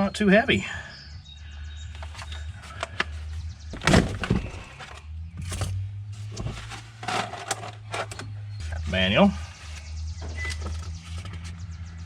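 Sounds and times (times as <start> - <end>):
plastic and paper items handled: 6.3 - 8.9.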